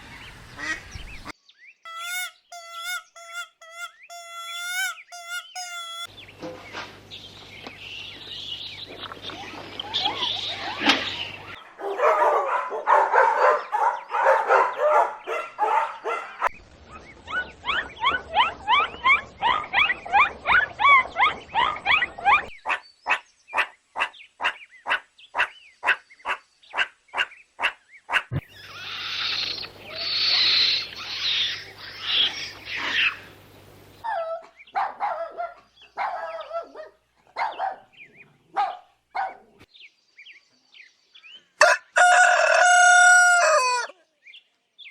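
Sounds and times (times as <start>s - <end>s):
animal calls: 1.9s - 6.1s, 17.3s - 39.4s.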